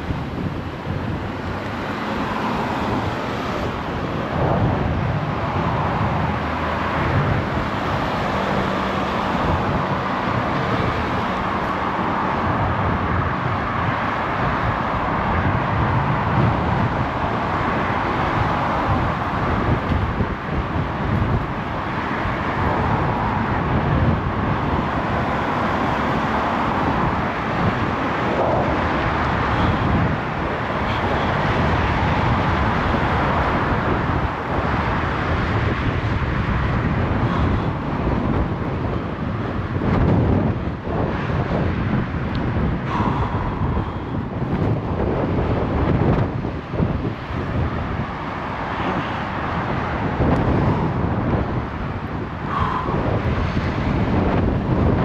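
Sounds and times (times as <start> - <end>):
cars passing: 0.0 - 55.0
fluctuating low rumble: 0.0 - 55.0.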